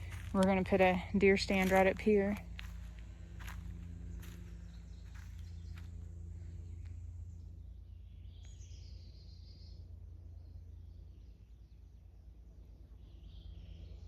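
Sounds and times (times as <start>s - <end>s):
footsteps: 0.0s - 6.1s
low rumble on microphone: 0.0s - 14.0s.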